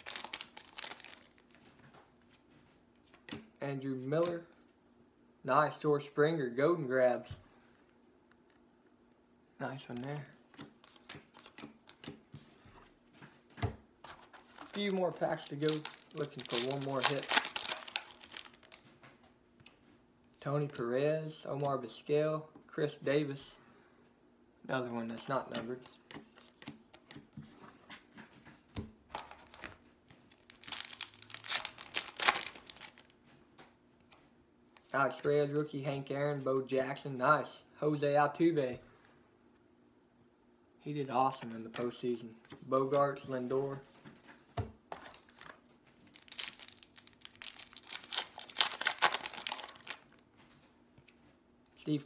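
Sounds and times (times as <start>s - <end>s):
card pack wrapper crinkling and tearing: 0.0s - 1.6s, 14.2s - 18.9s, 30.3s - 33.2s, 45.0s - 50.2s.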